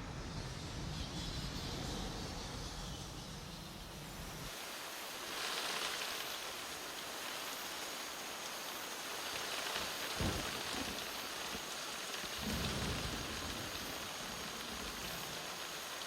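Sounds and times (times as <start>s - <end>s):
heavy rain falling: 4.5s - 16.0s.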